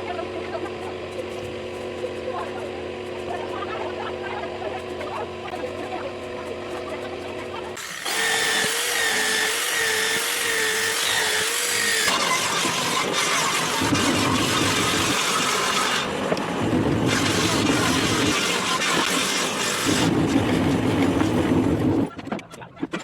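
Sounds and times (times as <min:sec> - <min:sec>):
power tool cutting wood: 0:07.8 - 0:22.0.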